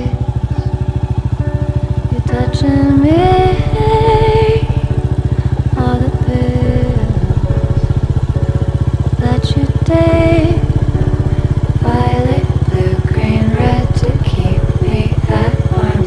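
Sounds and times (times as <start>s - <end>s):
motorcycle engine running: 0.0s - 16.0s
pop song with woman singing: 2.1s - 5.0s, 5.6s - 7.8s, 9.2s - 10.7s, 11.8s - 16.0s.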